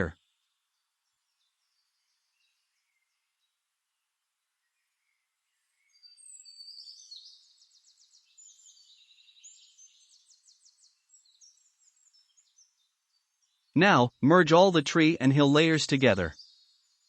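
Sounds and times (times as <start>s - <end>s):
songbird whistles and trills: 4.8s - 13.3s.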